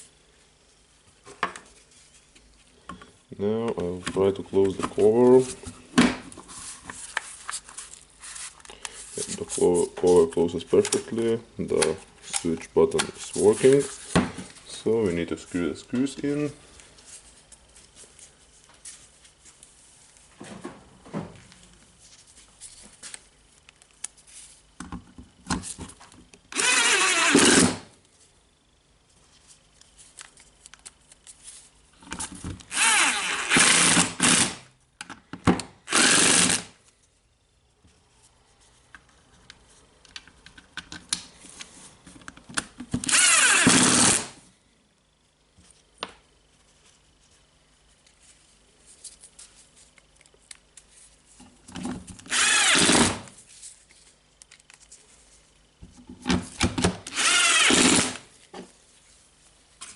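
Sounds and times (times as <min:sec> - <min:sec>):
power screwdriver whining: 0:26.5 - 0:27.8, 0:32.7 - 0:34.6, 0:35.9 - 0:36.7, 0:43.0 - 0:44.3, 0:52.3 - 0:53.3, 0:57.1 - 0:58.2.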